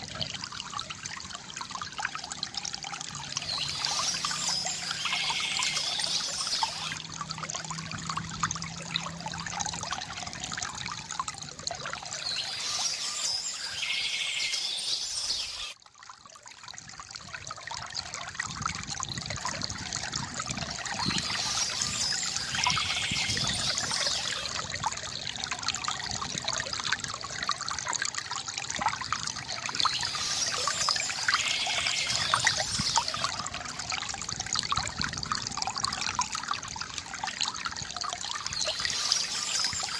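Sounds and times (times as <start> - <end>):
water trickling and splashing: 0.0 - 39.9
birds chirping: 3.4 - 7.0, 12.2 - 15.8, 21.0 - 24.5, 29.8 - 33.3, 38.6 - 39.9.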